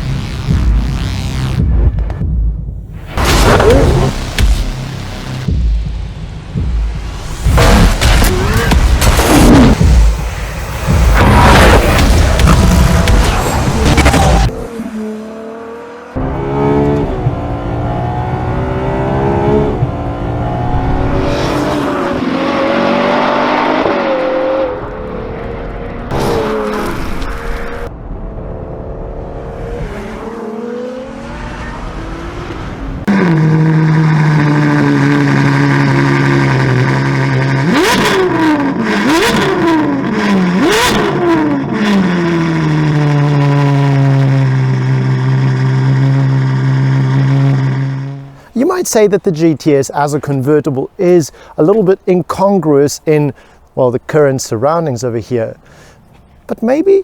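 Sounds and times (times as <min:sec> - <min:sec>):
car engine accelerating: 0:07.2 - 0:48.5
engine revving blips: 0:29.0 - 0:48.4.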